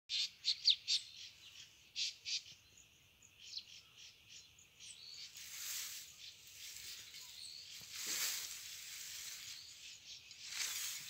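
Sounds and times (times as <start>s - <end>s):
small birds chirping: 0.1s - 11.0s
soft even hiss: 5.2s - 11.0s.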